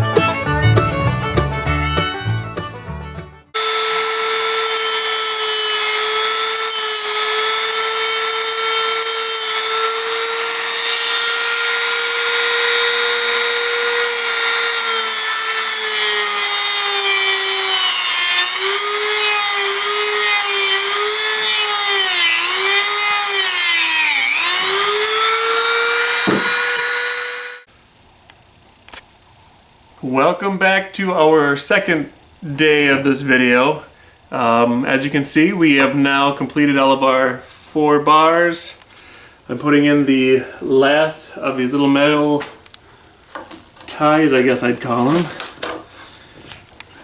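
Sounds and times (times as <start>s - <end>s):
power sander on wood: 3.6s - 27.7s.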